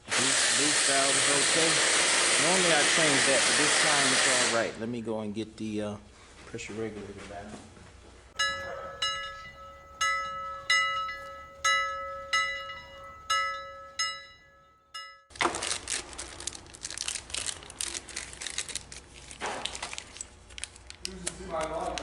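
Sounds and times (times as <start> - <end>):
bell-like metallic ring: 8.4 - 15.3
plastic wrapping crinkling: 15.4 - 22.0.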